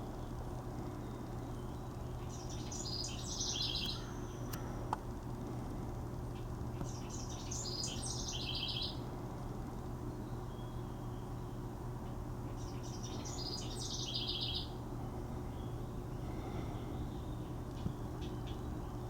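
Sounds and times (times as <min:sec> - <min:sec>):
low steady hum: 0:00.0 - 0:19.0
bird chirping: 0:01.0 - 0:04.5, 0:06.8 - 0:09.1, 0:10.2 - 0:14.8.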